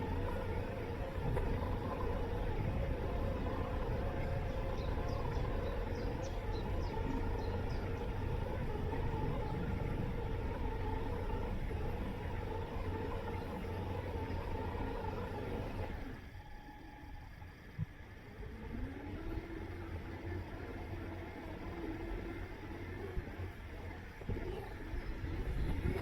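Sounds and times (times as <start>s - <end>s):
robot lawn mower motors humming: 0.0s - 26.0s.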